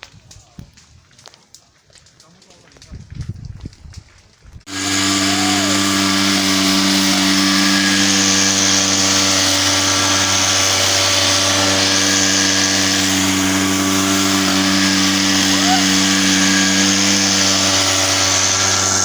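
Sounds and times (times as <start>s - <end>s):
loud machine drone: 4.7s - 19.0s.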